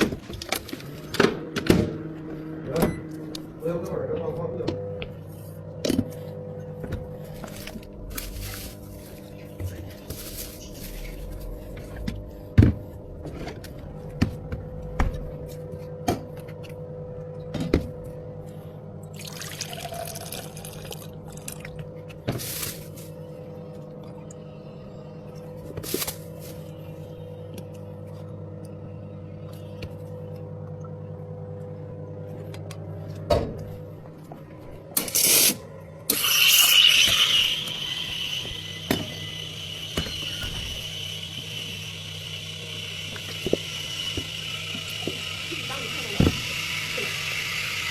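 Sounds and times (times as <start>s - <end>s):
steady machine hum: 0.0s - 47.9s
liquid pouring into a container: 19.1s - 21.8s.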